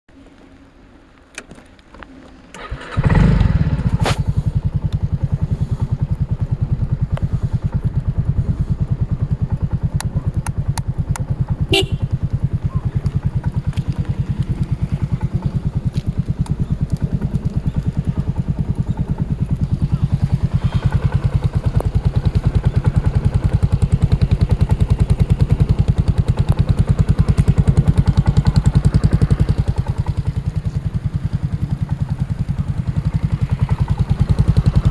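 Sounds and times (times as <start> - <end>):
scooter engine starting and idling: 1.3 - 34.9.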